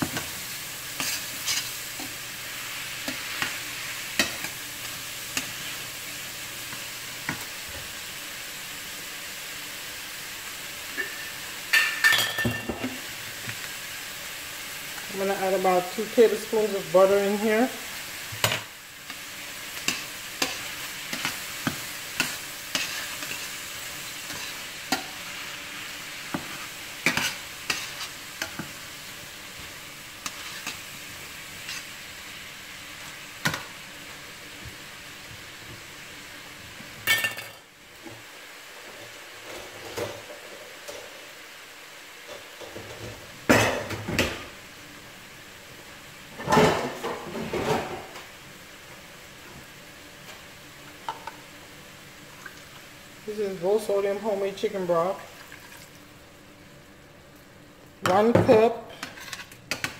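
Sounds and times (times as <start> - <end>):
food sizzling in butter: 0.0 - 59.9
metal spatula scraping pan: 1.0 - 2.1, 19.8 - 25.3, 26.3 - 28.7, 31.6 - 31.9, 58.1 - 59.9.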